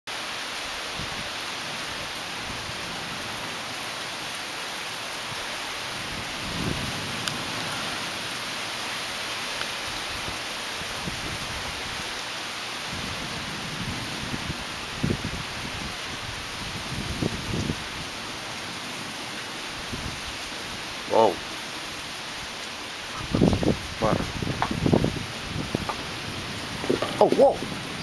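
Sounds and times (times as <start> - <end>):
heavy rain hissing: 0.1 - 28.0
low thunder rumbles: 5.9 - 8.4, 12.9 - 22.1, 23.0 - 28.0.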